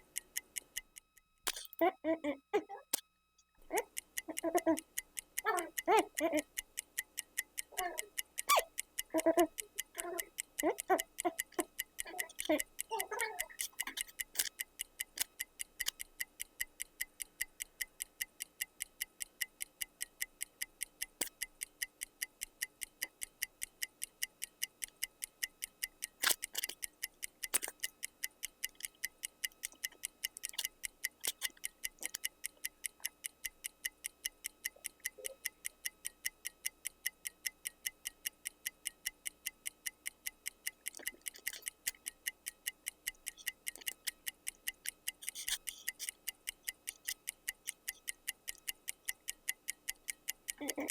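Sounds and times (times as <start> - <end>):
clock ticking: 0.0 - 50.9
person making wordless sounds: 1.5 - 3.0, 3.6 - 6.6, 7.8 - 14.5, 50.6 - 50.9.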